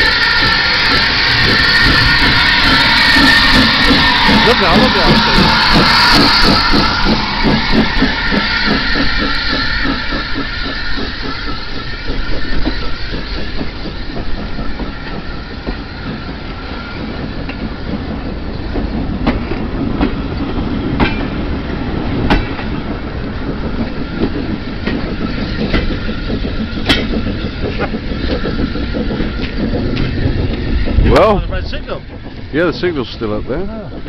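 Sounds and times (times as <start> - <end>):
train rolling past: 0.0 - 34.0
wheels clicking over rail joints: 0.0 - 34.0.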